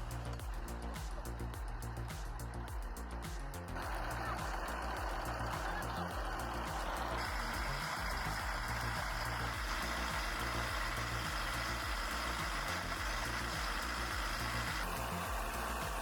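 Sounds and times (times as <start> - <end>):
heavy machinery engine running: 0.0 - 16.0.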